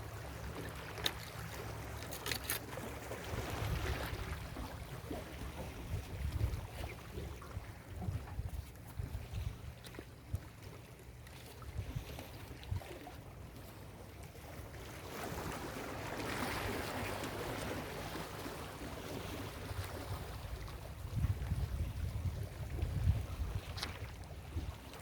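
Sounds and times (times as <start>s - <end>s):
ocean waves on a beach: 0.0s - 25.0s
wind buffeting microphone: 3.2s - 10.4s, 19.3s - 24.9s.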